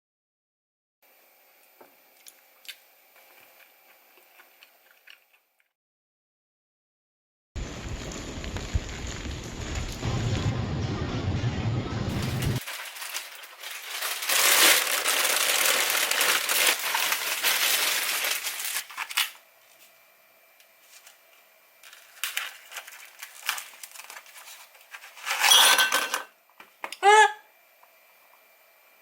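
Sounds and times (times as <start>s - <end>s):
packaging crinkling and rustling: 12.1s - 20.0s, 20.8s - 25.6s.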